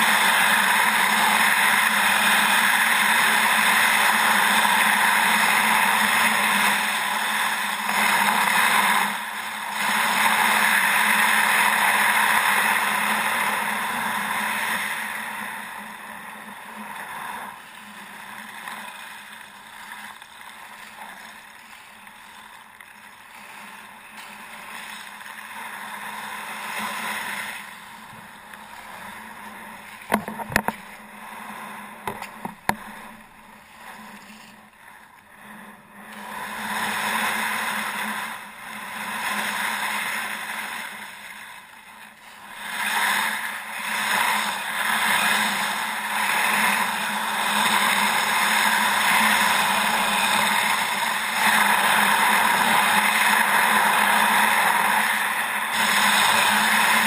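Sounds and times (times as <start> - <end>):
wind: 0.0 - 57.0
rushing water: 16.6 - 57.0.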